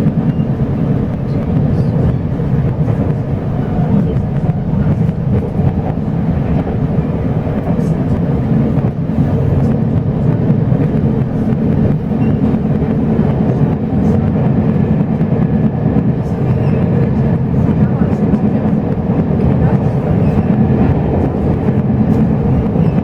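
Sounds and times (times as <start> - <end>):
train carriage rumbling: 0.0 - 23.0
train wheels running on rails: 0.0 - 23.0.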